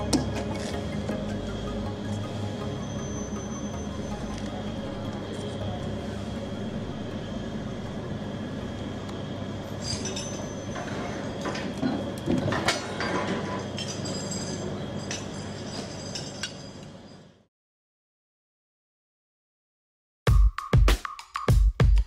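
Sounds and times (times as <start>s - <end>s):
high-pitched wheel squeals: 2.2s - 4.5s
rumbling clinking rail vehicle: 8.2s - 17.4s.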